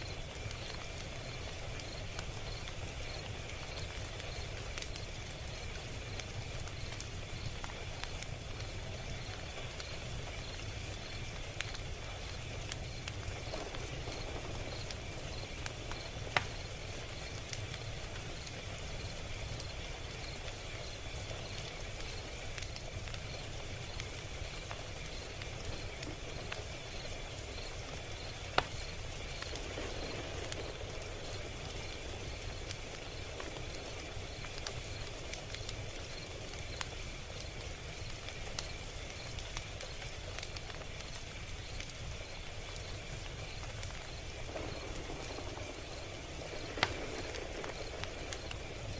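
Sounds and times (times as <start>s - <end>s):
log fire crackling: 0.0s - 48.9s.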